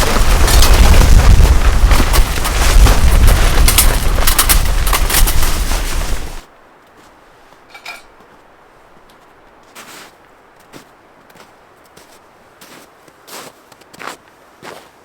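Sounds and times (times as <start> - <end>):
faint clatter: 0.0 - 6.4
wind buffeting microphone: 0.0 - 6.5.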